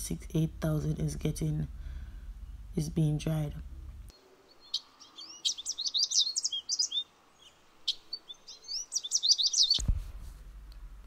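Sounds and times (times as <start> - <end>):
low steady hum: 0.0 - 11.0
small bird chirping: 4.1 - 9.8.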